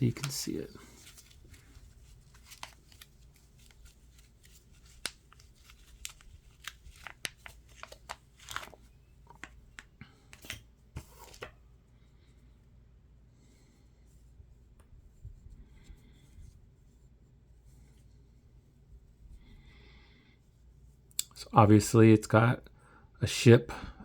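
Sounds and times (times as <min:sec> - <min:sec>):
packaging crinkling: 0:00.0 - 0:11.5.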